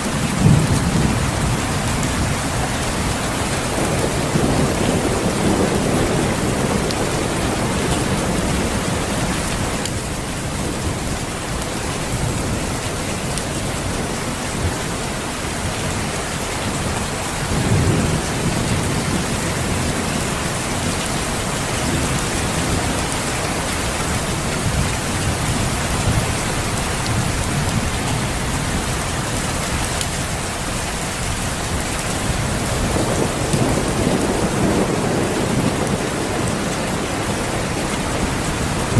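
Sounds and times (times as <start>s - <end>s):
rolling thunder rumbles: 0.0s - 38.9s
steady rain falling: 0.0s - 38.9s.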